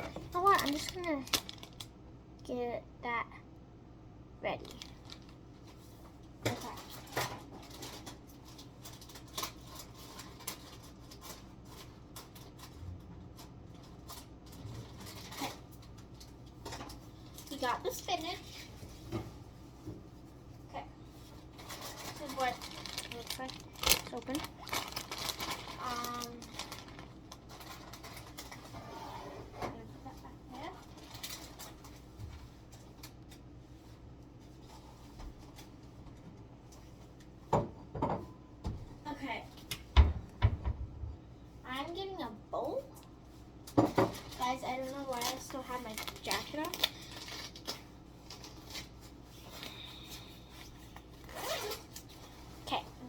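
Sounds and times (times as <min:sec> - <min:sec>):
plastic package clicks and rustles: 0:00.4 - 0:02.0, 0:04.6 - 0:05.4, 0:06.5 - 0:12.8, 0:21.6 - 0:28.7, 0:30.8 - 0:32.0, 0:45.0 - 0:49.7.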